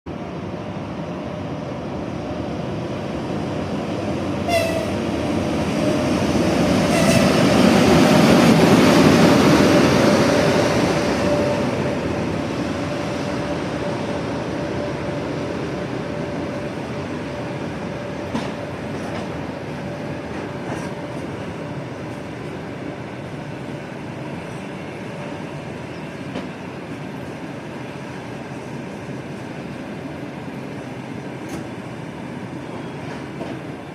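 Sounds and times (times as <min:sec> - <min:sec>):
train passing at speed: 0:00.1 - 0:33.9
train horn blasts: 0:04.5 - 0:05.0, 0:06.9 - 0:07.4.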